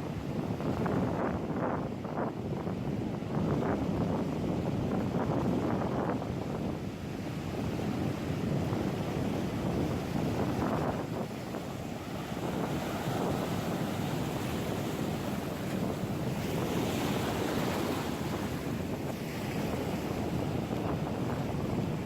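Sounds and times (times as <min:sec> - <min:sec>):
wind buffeting microphone: 0:00.0 - 0:22.0
surf breaking on beach: 0:07.6 - 0:22.0.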